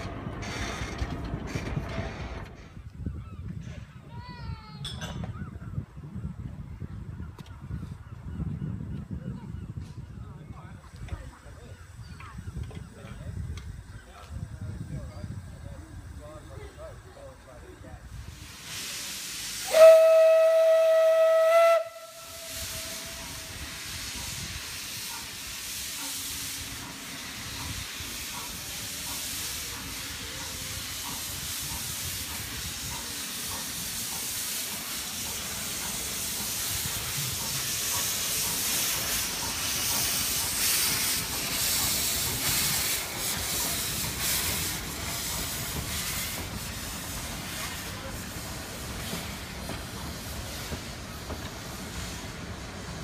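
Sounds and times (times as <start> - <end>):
train noise: 0.0 - 53.0
steam hissing: 13.3 - 53.0
steam locomotive whistle: 19.6 - 23.6.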